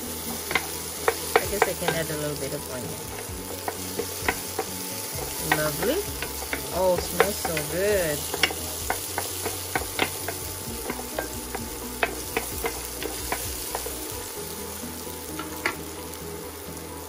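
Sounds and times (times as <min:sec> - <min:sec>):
onion and garlic sizzling in oil: 0:00.0 - 0:17.0
wooden spoon clicking against pan: 0:03.2 - 0:14.0.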